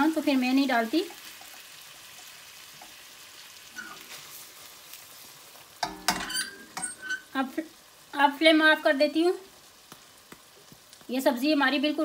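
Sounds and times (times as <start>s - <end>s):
vegetables sizzling in oil: 0.0s - 12.0s
spatula knocking in wok: 5.8s - 7.2s.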